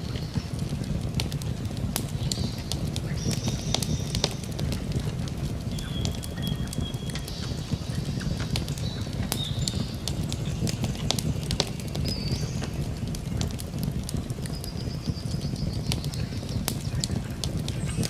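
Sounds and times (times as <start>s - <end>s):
campfire crackling and popping: 0.0s - 18.0s
low rumble of flames: 0.0s - 18.0s
bird chirps: 5.7s - 12.9s.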